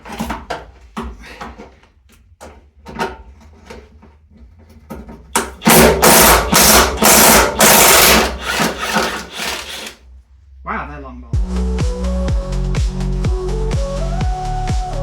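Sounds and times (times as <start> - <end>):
tools clicking and knocking: 4.6 - 10.0
power tool in short bursts: 5.6 - 10.0.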